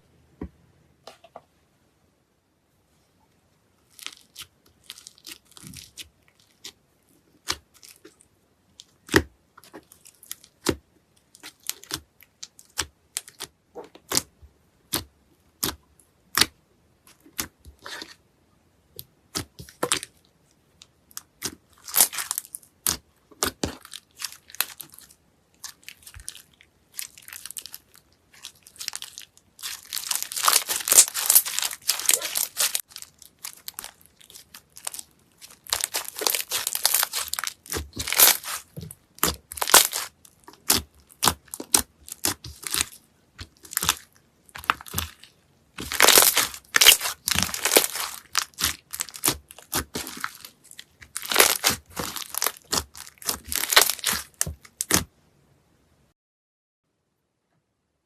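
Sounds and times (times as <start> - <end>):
slime popping and crackling: 11.4 - 16.5, 21.0 - 55.1.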